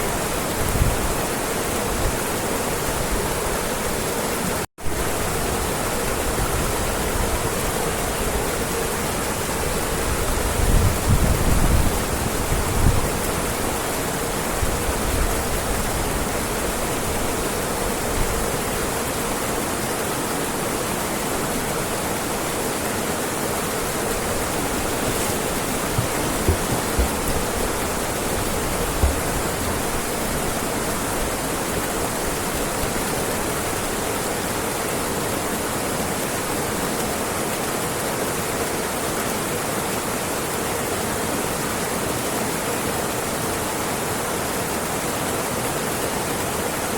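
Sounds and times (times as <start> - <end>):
waterfall rushing: 0.0 - 46.9
low bumps: 24.0 - 30.5.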